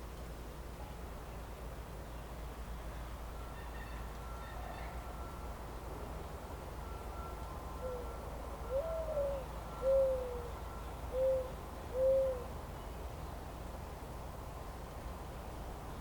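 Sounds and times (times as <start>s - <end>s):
bird hooting: 7.8s - 10.5s, 11.1s - 12.5s.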